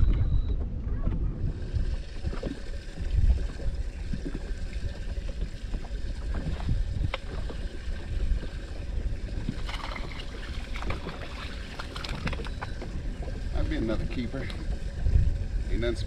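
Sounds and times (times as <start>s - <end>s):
low rumble of water and air: 0.0s - 16.0s
light clicks and splashy rattles: 9.4s - 16.0s.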